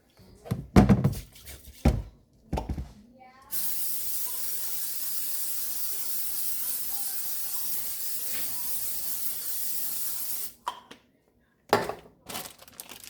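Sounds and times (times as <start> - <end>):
batter sizzling in a pan: 3.6 - 10.5.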